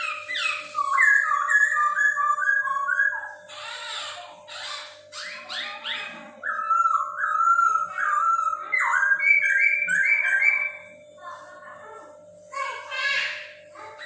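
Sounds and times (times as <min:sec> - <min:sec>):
bird whistling phrases: 0:00.0 - 0:10.9.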